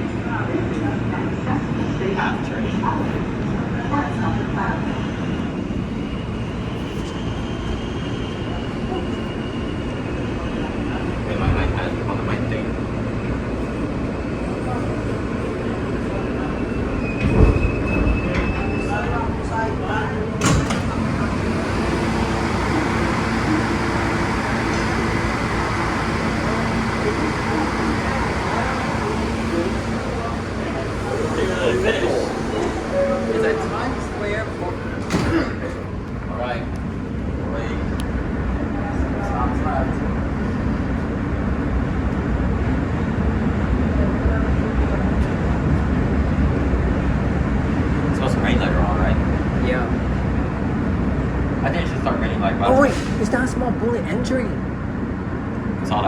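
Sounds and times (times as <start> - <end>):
wheels rumbling on rail: 0.0 - 56.0.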